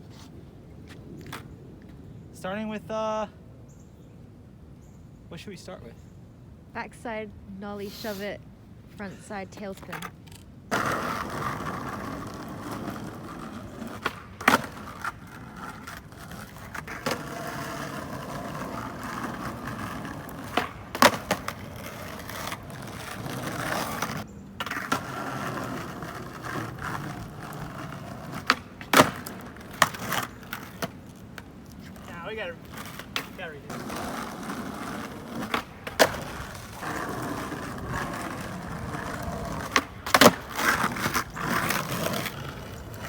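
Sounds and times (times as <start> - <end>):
skateboard wheels rolling on pavement: 0.0 - 4.0, 7.8 - 43.0
skateboard popping and slapping down: 9.7 - 43.0.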